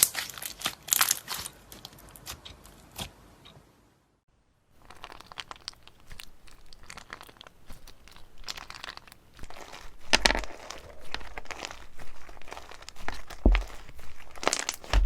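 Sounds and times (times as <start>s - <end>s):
slime squeezed crackling: 4.8s - 15.0s.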